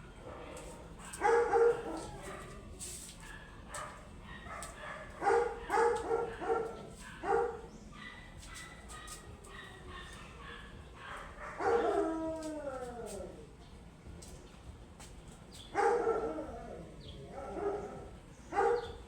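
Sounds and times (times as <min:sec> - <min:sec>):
dog barking: 0:00.2 - 0:12.1, 0:15.7 - 0:16.4, 0:17.4 - 0:19.0.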